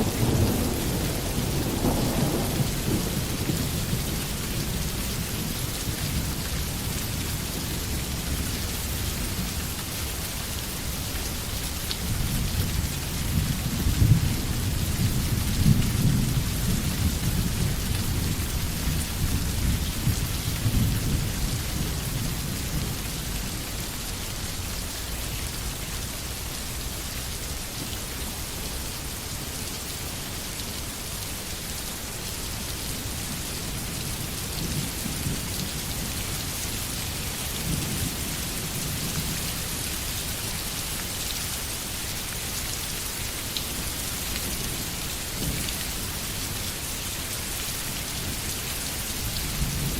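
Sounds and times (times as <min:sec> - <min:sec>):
thunder rumbling: 0:00.0 - 0:05.7
steady rain: 0:00.0 - 0:49.9.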